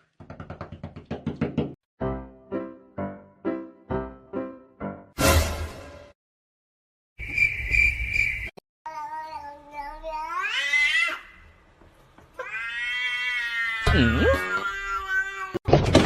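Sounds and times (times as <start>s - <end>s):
cat meowing: 12.4s - 15.6s.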